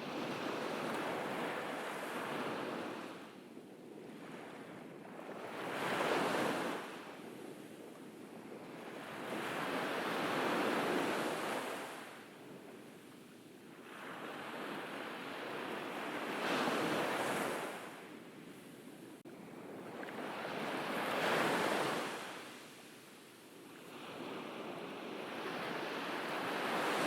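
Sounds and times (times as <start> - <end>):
sea waves breaking on beach: 13.8 - 18.8, 19.4 - 27.0.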